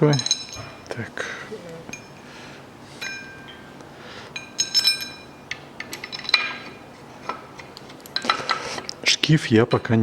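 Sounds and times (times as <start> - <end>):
bolts and tools clinking on metal: 0.0 - 1.0, 1.9 - 2.3, 3.0 - 9.0.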